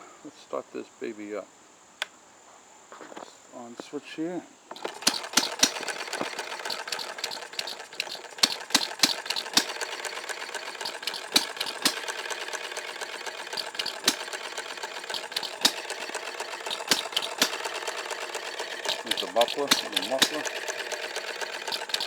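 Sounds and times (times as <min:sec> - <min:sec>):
engine mechanical clatter: 0:04.7 - 0:22.0.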